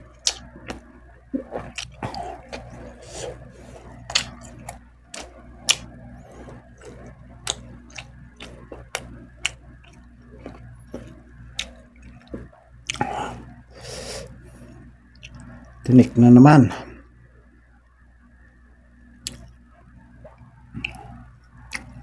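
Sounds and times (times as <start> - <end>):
wet lip smacks while chewing: 19.2 - 19.5, 21.7 - 22.0.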